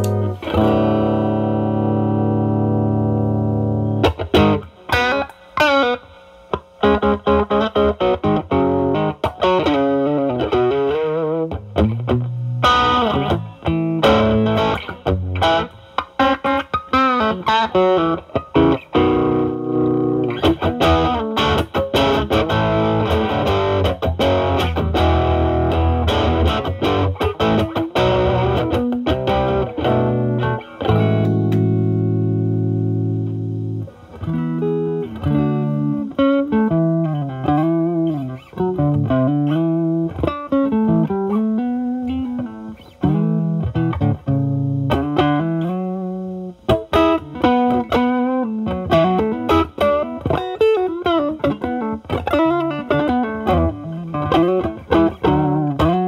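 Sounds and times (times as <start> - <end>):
bluesy guitar lines with bends: 0.0 - 56.0
overdriven electric guitar: 0.0 - 56.0.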